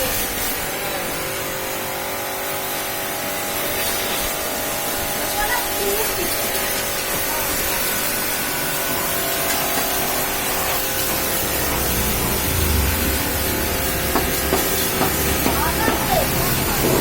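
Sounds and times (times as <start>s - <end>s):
pressure washer spraying hiss: 0.0s - 17.0s
low rumble: 10.9s - 15.4s.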